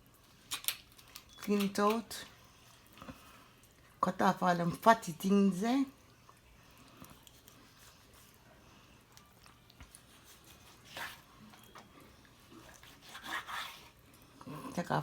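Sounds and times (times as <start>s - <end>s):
knife scraping: 9.9s - 14.0s.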